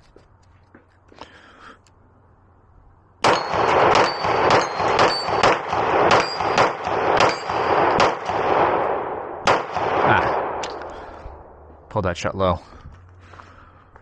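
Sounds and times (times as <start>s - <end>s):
pistol shots with echo: 3.2s - 11.7s.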